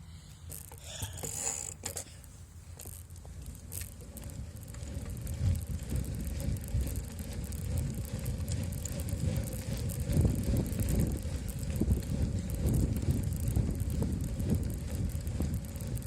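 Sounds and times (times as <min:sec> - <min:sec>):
bicycle tyre rumble: 0:00.0 - 0:16.0
bike rattling over bumps: 0:00.4 - 0:16.0
wind on microphone: 0:04.4 - 0:16.0.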